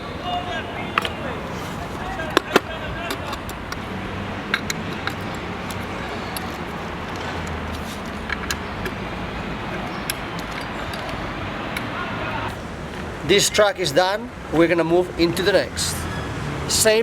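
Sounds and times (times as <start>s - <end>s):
allen key clicking on screws: 4.5s - 9.0s, 9.8s - 11.9s.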